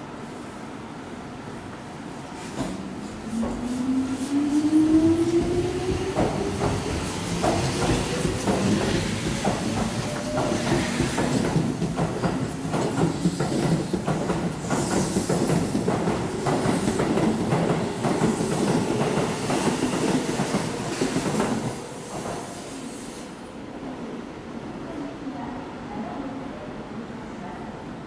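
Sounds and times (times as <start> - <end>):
train wheels clacking on rails: 4.6 - 22.6.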